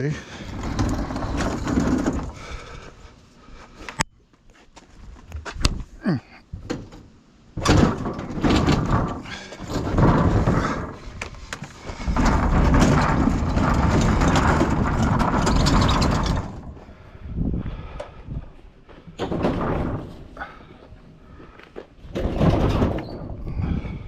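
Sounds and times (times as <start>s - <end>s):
scrap metal scraping: 0.2s - 2.9s, 7.8s - 16.9s
scrap metal rattling knocks: 0.3s - 2.8s, 6.6s - 16.8s, 19.2s - 20.4s, 22.0s - 23.8s.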